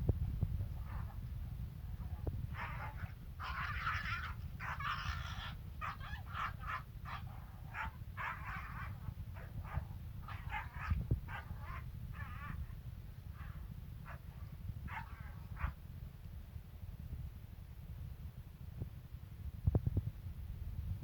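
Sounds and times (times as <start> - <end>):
steady low rumble: 0.0 - 21.0
dog yipping and whimpering: 2.6 - 12.6.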